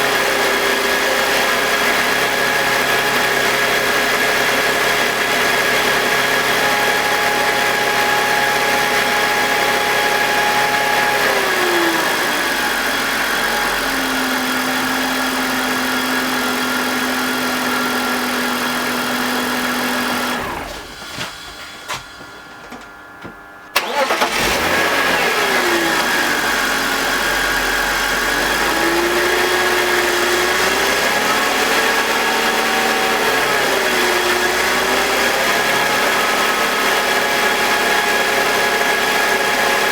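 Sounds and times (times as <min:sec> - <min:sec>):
engine clicks: 0:23.7 - 0:24.8
car engine idling: 0:23.8 - 0:39.9.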